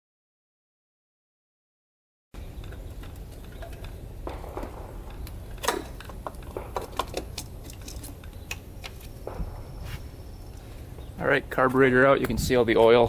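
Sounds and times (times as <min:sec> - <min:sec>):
loud metal clank: 0:03.7 - 0:08.2.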